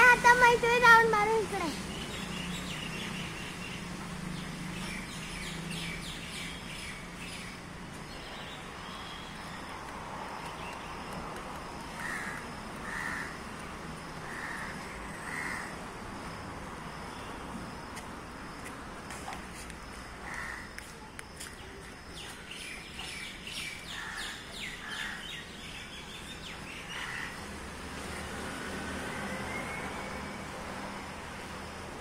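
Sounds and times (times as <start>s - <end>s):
birds calling: 11.9s - 13.6s.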